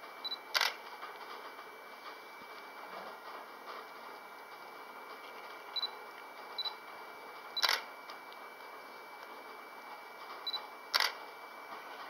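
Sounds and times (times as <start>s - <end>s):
short high camera beeps: 0.2s - 0.8s, 5.8s - 6.0s, 7.6s - 7.9s, 10.4s - 11.2s
camera shutter click: 0.5s - 0.8s, 7.6s - 7.8s, 10.9s - 11.2s.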